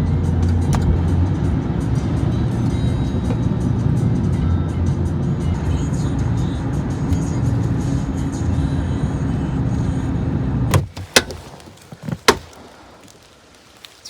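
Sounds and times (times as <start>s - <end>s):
music playing: 0.0s - 10.4s
car road rumble: 0.0s - 13.9s.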